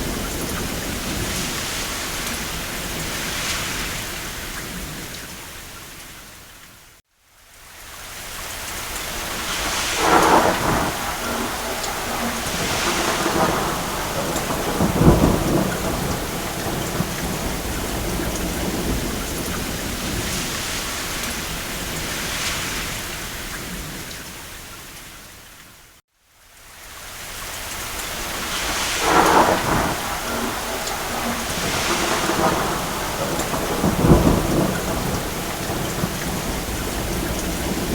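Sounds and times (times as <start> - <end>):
thunder rumbling: 0.0 - 5.2, 9.1 - 24.2, 27.9 - 37.9
heavy rain on a roof: 0.0 - 37.9.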